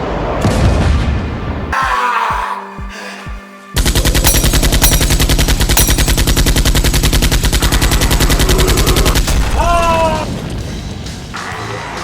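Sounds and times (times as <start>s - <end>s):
rapid automatic gunfire: 3.8s - 9.4s.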